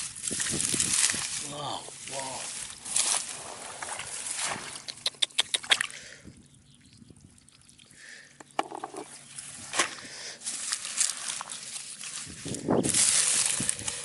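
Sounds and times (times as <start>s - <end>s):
wet mud squelching: 2.8s - 6.2s.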